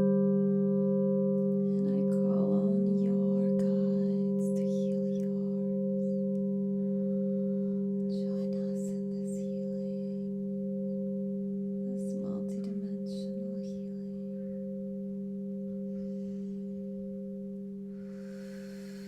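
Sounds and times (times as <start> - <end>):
singing bowls ringing: 0.0 - 19.0.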